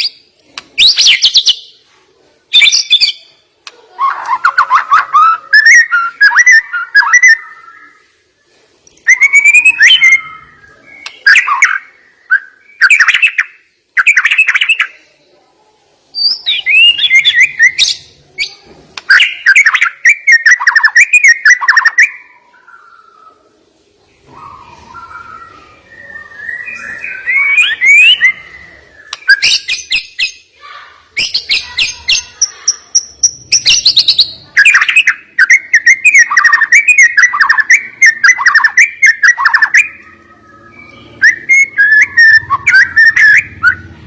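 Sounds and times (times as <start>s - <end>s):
songbird singing varied song: 9.0s - 15.2s, 16.1s - 30.4s, 31.2s - 43.9s.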